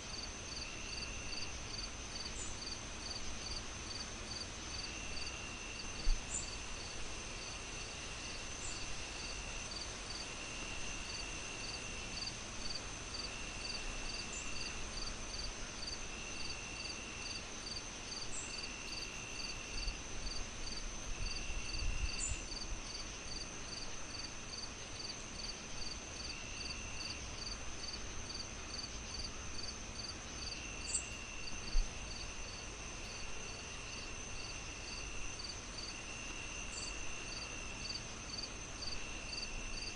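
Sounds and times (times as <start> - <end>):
crickets chirping: 0.1 - 39.9.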